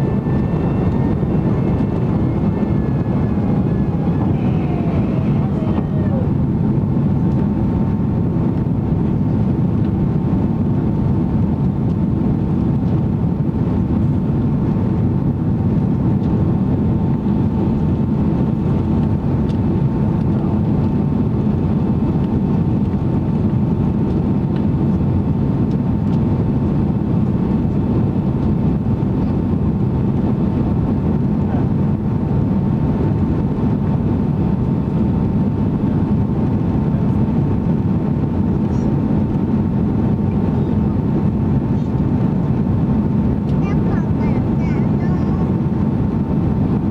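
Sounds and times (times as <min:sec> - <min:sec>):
thin steady whine: 0:00.0 - 0:07.2
jet engine and airflow roar: 0:00.0 - 0:46.9.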